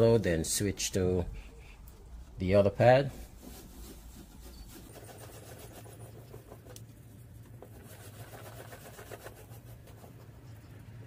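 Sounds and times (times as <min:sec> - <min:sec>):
wipe rubbing on plastic lens: 0:03.1 - 0:10.4.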